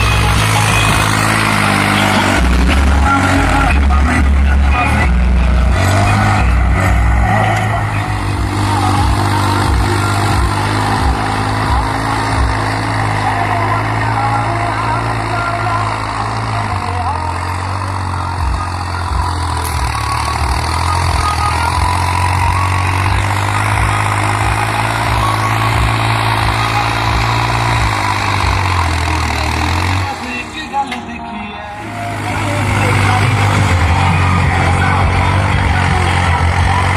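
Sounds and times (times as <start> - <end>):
tractor diesel engine under load: 0.0 - 36.9.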